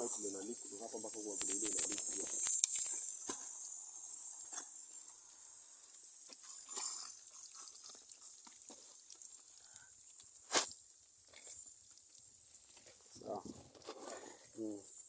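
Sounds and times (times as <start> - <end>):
water hissing from pipe: 0.0 - 10.8, 14.1 - 15.0.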